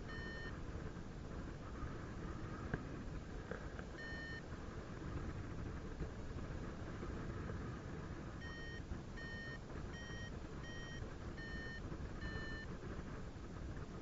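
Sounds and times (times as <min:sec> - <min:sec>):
variometer beeping: 0:00.0 - 0:00.6, 0:03.9 - 0:04.5, 0:08.4 - 0:12.8.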